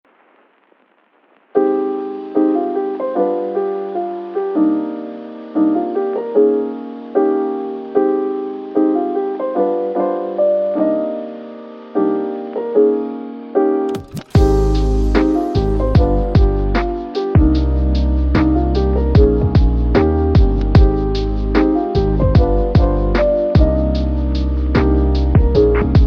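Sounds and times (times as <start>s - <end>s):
soft piano chords: 1.6s - 26.0s.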